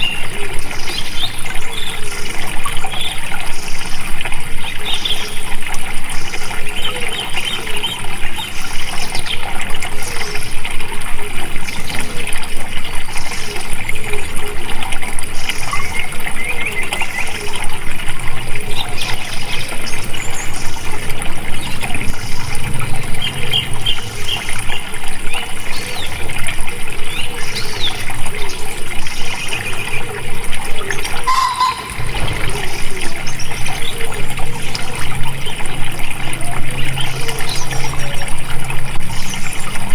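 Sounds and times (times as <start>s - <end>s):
trickling water: 0.0s - 39.9s
birds chirping: 18.5s - 39.9s.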